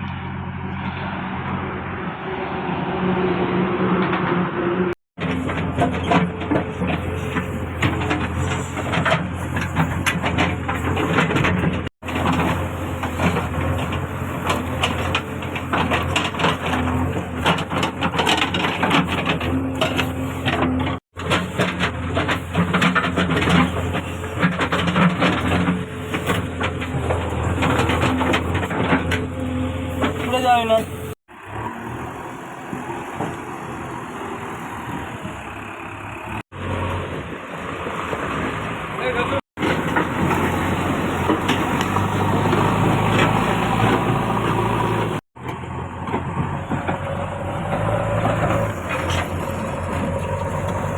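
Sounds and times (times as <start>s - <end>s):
diesel engine running: 4.4s - 50.9s
crunching and knocking from digging: 5.2s - 31.8s.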